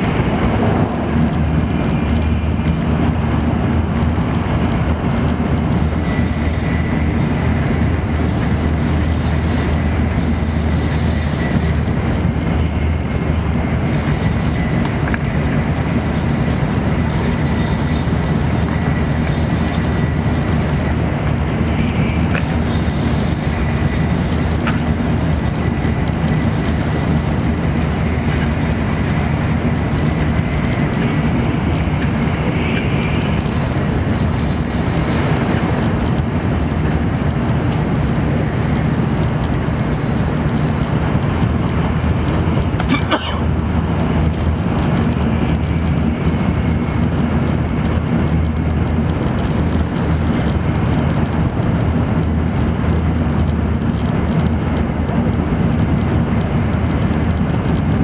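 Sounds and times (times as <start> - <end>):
train cabin rumble: 0.0 - 58.0.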